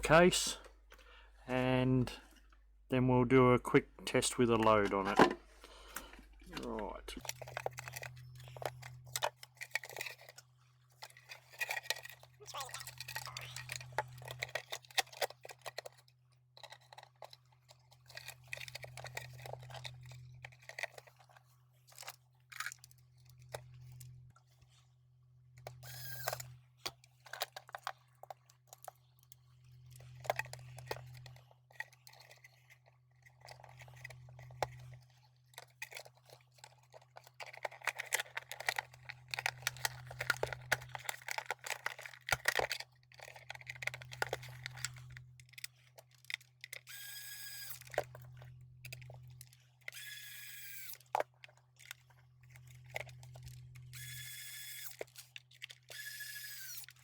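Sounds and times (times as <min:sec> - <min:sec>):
plastic case clicks and rattles: 0:04.5 - 0:10.4, 0:11.0 - 0:16.0, 0:29.9 - 0:46.9.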